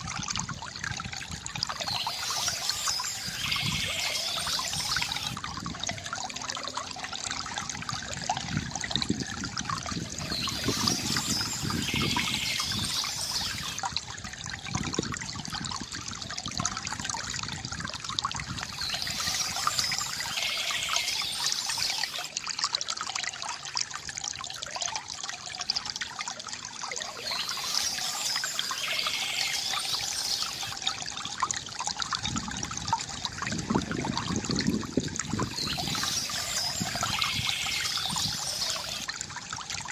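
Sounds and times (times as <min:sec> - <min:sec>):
water trickling from bamboo fountain: 0:00.0 - 0:39.9
birds chirping: 0:01.7 - 0:05.4, 0:10.1 - 0:13.8, 0:18.5 - 0:22.3, 0:27.0 - 0:30.9, 0:35.4 - 0:39.1.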